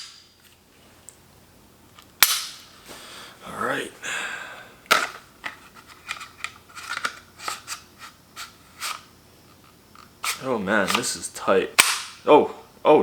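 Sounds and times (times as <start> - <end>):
pistol clicking in plastic holster: 2.2 - 2.6, 11.8 - 12.2.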